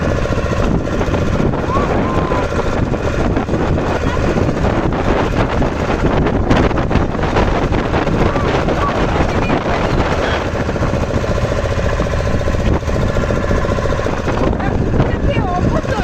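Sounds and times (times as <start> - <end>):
motorboat engine running: 0.0 - 16.0
wind buffeting microphone: 0.0 - 16.0
gulls calling: 1.5 - 5.9.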